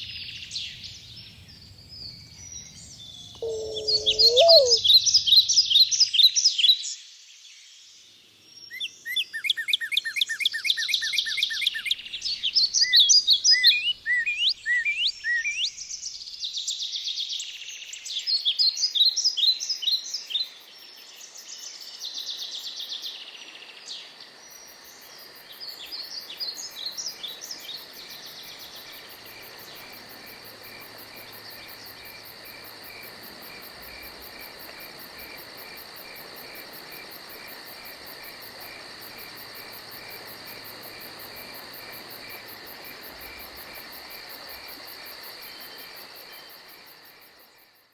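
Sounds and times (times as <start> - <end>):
songbirds singing: 0.3 - 5.5.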